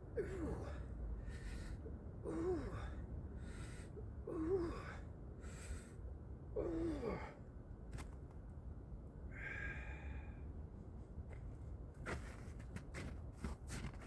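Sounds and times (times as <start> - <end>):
man breathing hard: 0.2 - 6.1, 9.3 - 10.5.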